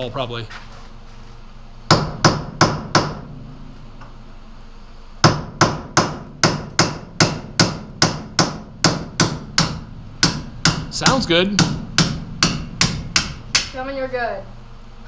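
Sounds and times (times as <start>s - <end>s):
hammer striking metal drum: 1.9s - 3.3s, 5.2s - 13.8s.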